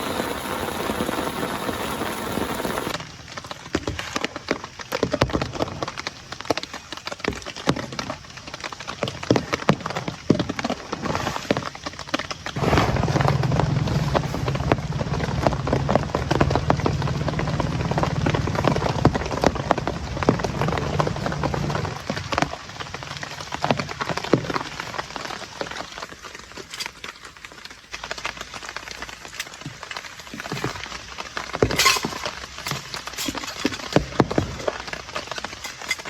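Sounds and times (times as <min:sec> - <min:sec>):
low steady drone: 0:00.0 - 0:03.0, 0:12.6 - 0:23.4
rain pattering: 0:00.0 - 0:36.0.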